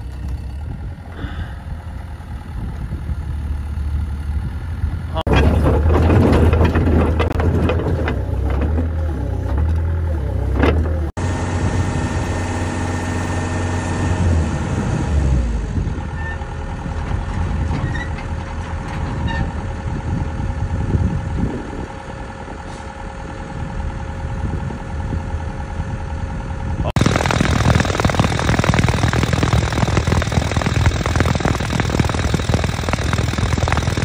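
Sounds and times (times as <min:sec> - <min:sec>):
excavator diesel engine rumbling: 0:00.0 - 0:34.0
thin steady whine: 0:26.9 - 0:34.0.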